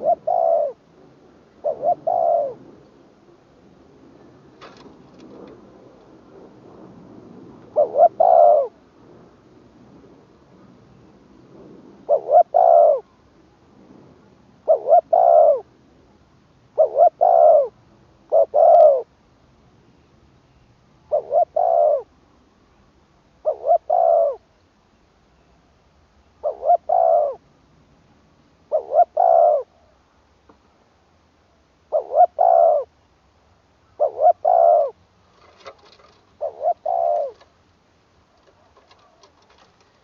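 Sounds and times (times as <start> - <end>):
dove cooing: 0.0 - 0.8, 1.6 - 2.8, 7.7 - 8.8, 12.0 - 13.1, 14.6 - 15.7, 16.8 - 19.1, 21.1 - 22.1, 23.4 - 24.5, 26.4 - 27.4, 28.7 - 29.9, 31.9 - 32.9, 33.9 - 37.5, 38.4 - 40.0.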